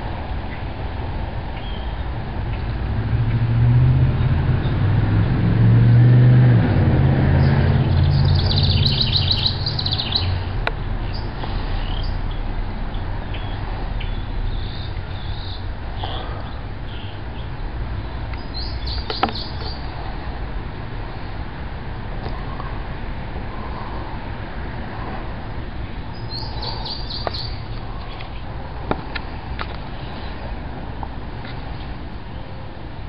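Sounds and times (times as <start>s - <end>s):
passing vehicle engine hum: 0.0s - 33.0s
songbird chirping: 1.5s - 2.8s, 7.2s - 20.0s, 25.6s - 28.5s.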